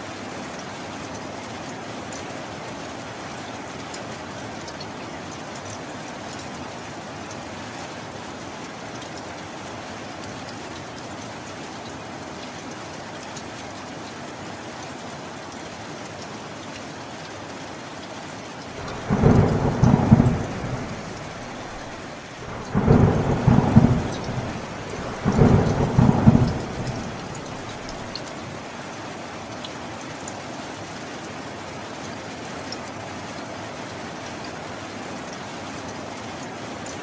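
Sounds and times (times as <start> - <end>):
steady rain: 0.0 - 37.0
thunder rolls crackling: 18.7 - 28.2.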